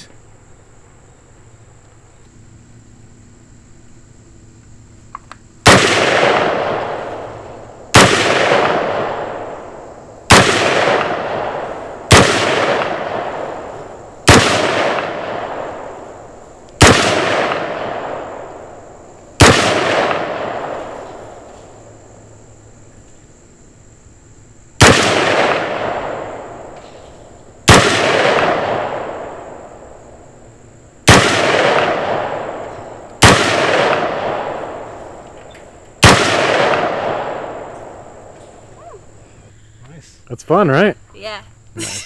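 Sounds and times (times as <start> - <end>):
pistol gunshots echoing: 5.6 - 9.7, 10.3 - 16.2, 16.8 - 18.8, 19.4 - 21.3, 24.8 - 26.8, 27.6 - 29.8, 31.0 - 35.2, 36.0 - 38.1.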